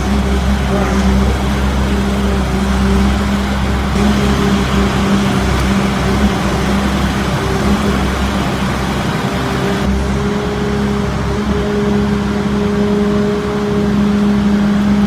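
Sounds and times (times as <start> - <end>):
vehicle engine running: 0.0 - 11.3.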